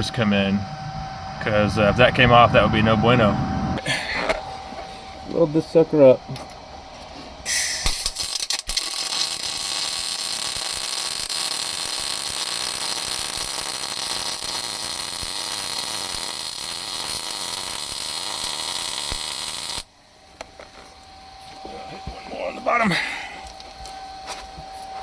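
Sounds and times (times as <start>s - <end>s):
sharp welding pops: 7.5s - 19.8s
welding arc crackling: 7.8s - 19.9s.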